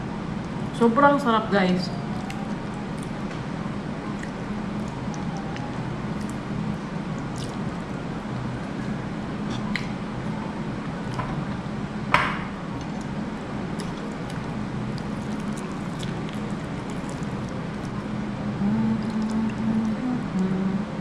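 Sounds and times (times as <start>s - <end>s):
steady low hum: 0.0s - 21.0s
wet chewing and squishing: 2.1s - 3.4s, 4.1s - 10.4s, 12.8s - 18.1s, 19.0s - 19.9s.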